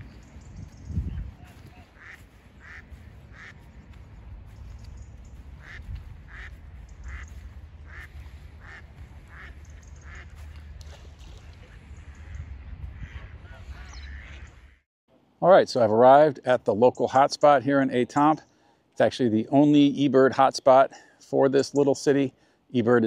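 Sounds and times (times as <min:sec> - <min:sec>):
bird calling: 0:00.0 - 0:03.9, 0:04.5 - 0:10.7
low wind rumble: 0:00.0 - 0:14.8.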